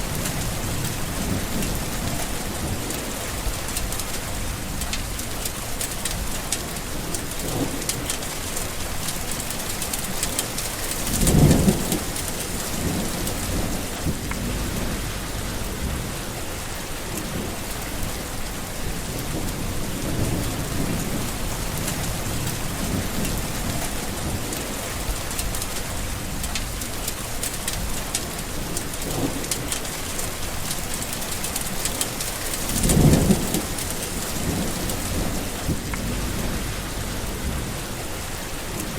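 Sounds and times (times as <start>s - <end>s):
rolling thunder: 0.0s - 5.4s, 10.7s - 26.9s, 30.5s - 38.9s
heavy rain: 0.0s - 38.9s.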